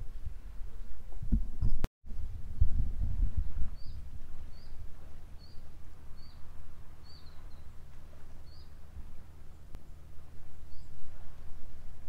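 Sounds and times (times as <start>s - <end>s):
steady low rumble: 0.0s - 12.0s
small bird chirping: 3.8s - 4.8s, 5.4s - 6.4s, 7.0s - 7.7s, 8.4s - 8.8s.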